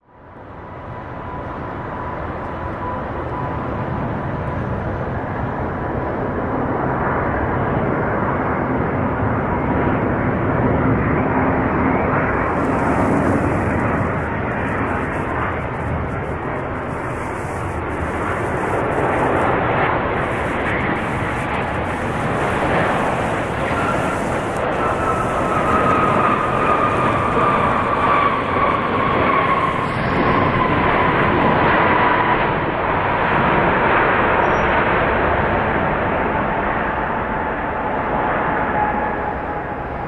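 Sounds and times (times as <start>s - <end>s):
jet engines roaring: 0.4s - 40.0s.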